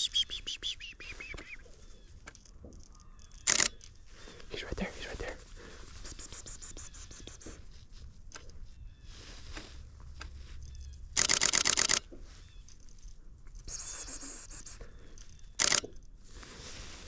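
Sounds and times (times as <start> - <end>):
camera shutter burst: 3.4 - 3.8, 11.2 - 12.1, 15.6 - 15.9.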